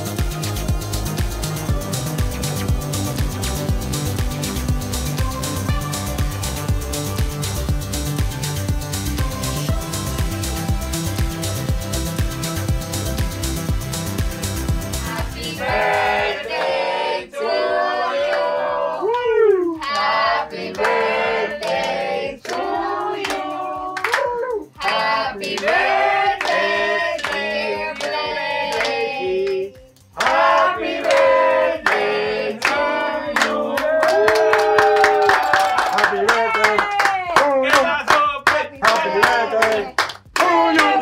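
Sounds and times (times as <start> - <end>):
group singing together: 14.9 - 19.1, 19.8 - 24.2, 24.8 - 34.5
hand claps: 18.3 - 41.0.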